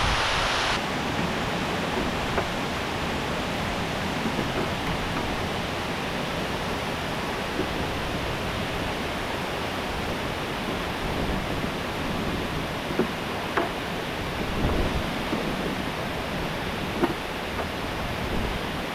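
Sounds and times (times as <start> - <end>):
waterfall rushing: 0.0 - 18.9.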